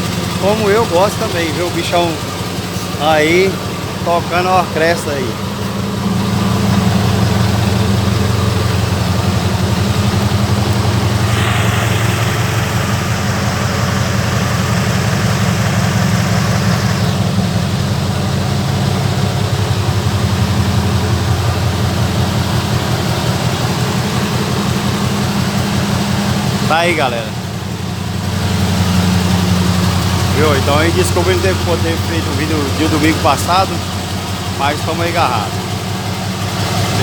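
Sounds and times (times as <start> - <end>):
diesel truck engine idling: 0.0 - 37.0
hiss: 10.9 - 17.2.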